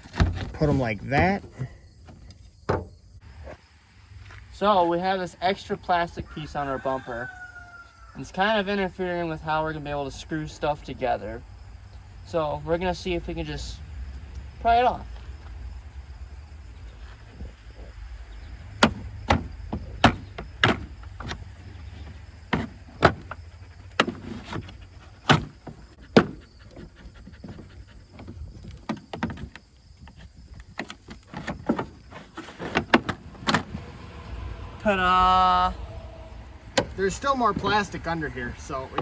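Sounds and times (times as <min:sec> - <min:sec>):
steady low hum: 0:33.0 - 0:39.0.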